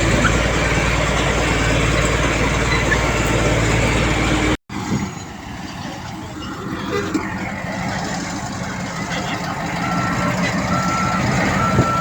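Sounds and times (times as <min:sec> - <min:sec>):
heavy diesel machinery running: 0:00.0 - 0:12.0.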